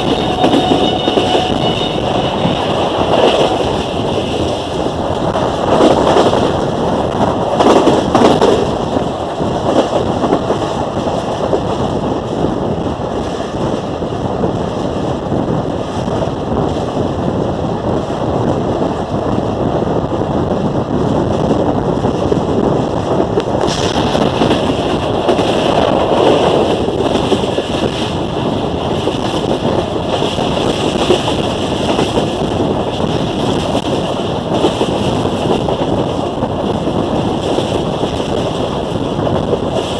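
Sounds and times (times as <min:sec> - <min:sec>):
train wheels rumbling on track: 0:00.0 - 0:39.9
wind buffeting microphone: 0:00.0 - 0:39.9.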